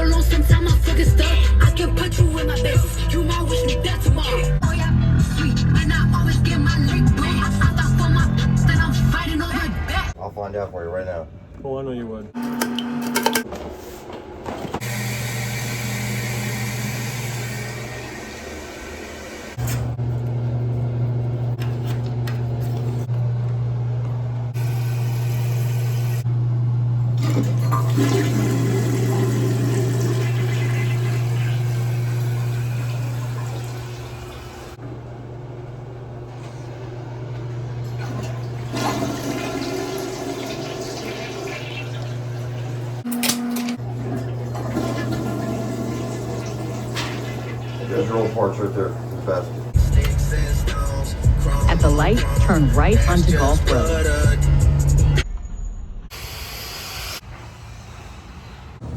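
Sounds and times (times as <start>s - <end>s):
water rushing through shower valve: 27.2s - 34.8s, 37.9s - 43.0s, 43.9s - 49.8s.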